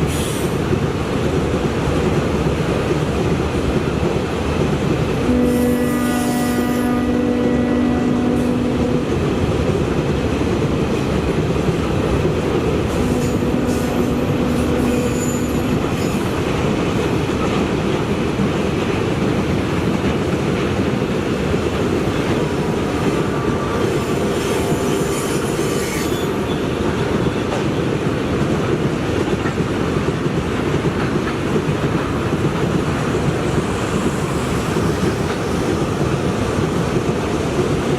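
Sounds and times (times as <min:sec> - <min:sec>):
train wheels on rails: 0:00.0 - 0:37.9.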